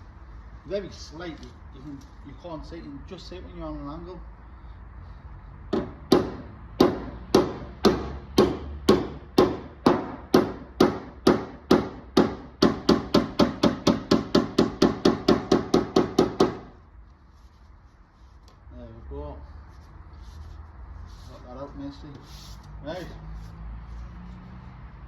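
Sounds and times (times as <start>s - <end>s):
hammer tapping on metal panel: 5.7s - 16.8s.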